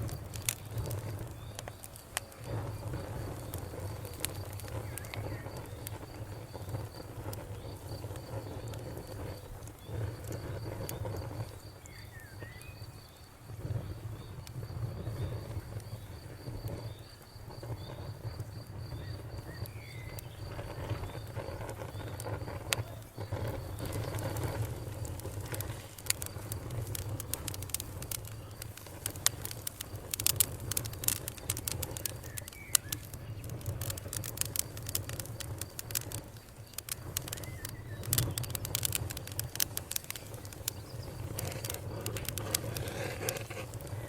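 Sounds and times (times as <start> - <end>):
campfire crackling and popping: 0.0 - 44.0
insect chirping: 0.0 - 44.0.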